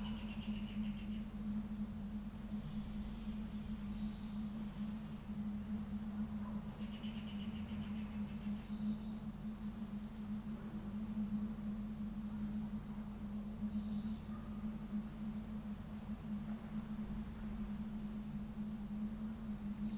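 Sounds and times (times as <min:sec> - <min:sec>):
steady low hum: 0:00.0 - 0:19.9
small birds chirping: 0:02.6 - 0:10.6.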